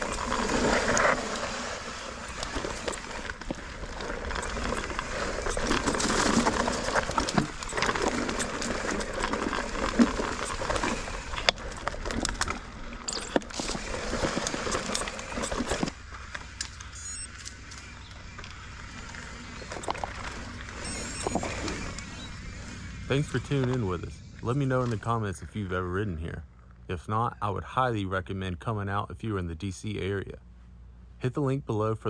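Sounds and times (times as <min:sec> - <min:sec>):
bike clicks and rattles: 0:00.0 - 0:22.8
bike tyres crunching over rocks: 0:00.0 - 0:25.1
low rumble: 0:17.6 - 0:28.0.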